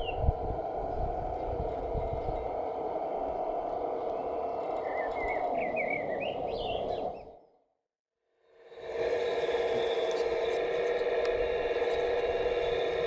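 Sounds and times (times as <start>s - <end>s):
birds chirping: 0.0s - 0.2s, 0.9s - 7.6s
model machine mechanical hum: 0.0s - 7.4s, 8.5s - 13.0s.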